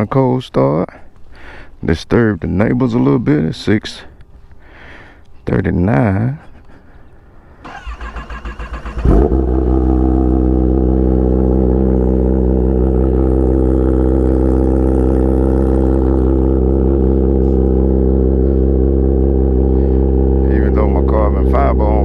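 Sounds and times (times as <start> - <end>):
motorcycle starter cranking: 7.6 - 10.0
motorcycle engine idling: 7.7 - 22.0.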